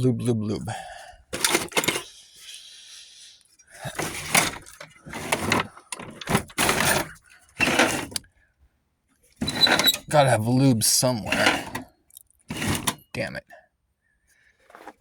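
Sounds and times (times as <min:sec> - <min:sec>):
hard objects clattering: 0:01.4 - 0:02.1, 0:03.8 - 0:08.2.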